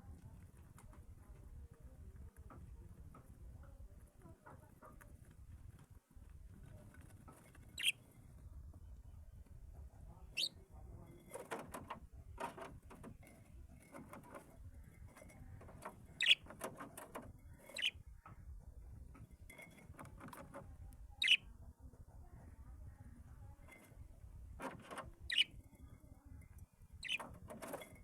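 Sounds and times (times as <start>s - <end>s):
birds chirping downward: 21.2s - 21.4s.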